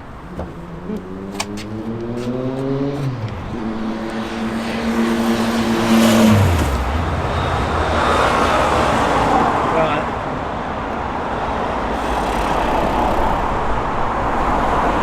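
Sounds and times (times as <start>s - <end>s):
car engine pulling away: 0.3s - 9.3s.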